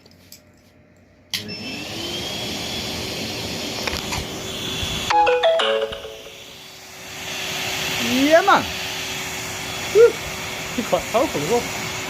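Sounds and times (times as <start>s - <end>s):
vacuum cleaner motor whining: 1.3s - 5.2s, 6.2s - 12.0s
ringing tone: 5.1s - 6.6s.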